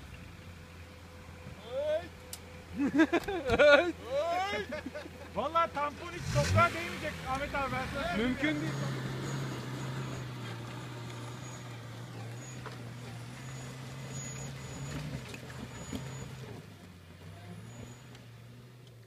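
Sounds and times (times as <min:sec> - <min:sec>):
car engine pulling uphill: 0:00.0 - 0:19.0
stones ticking under tyres: 0:08.6 - 0:17.0.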